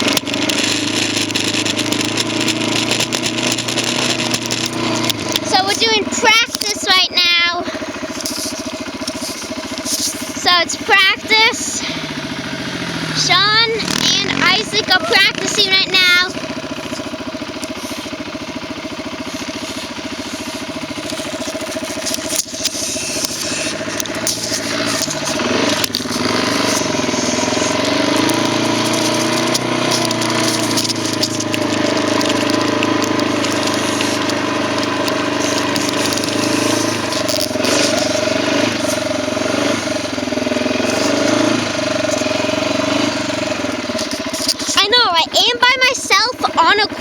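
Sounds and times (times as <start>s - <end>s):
quad engine running: 0.0s - 47.0s.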